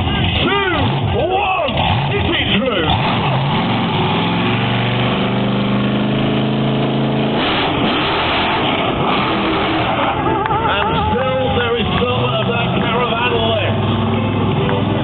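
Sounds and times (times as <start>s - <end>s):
truck engine at high revs: 0.0s - 15.0s.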